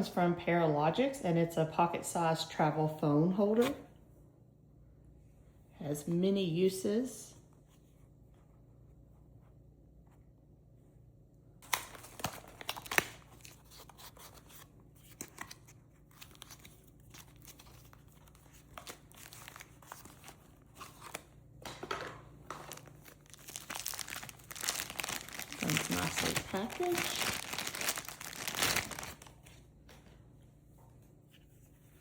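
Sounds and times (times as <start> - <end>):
packaging crinkling: 11.6 - 21.3, 22.5 - 29.5.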